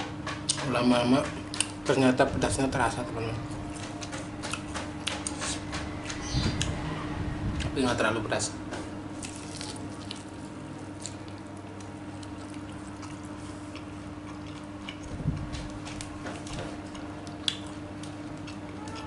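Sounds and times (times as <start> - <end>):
steady low hum: 0.0 - 19.0
wet chewing: 9.2 - 19.0.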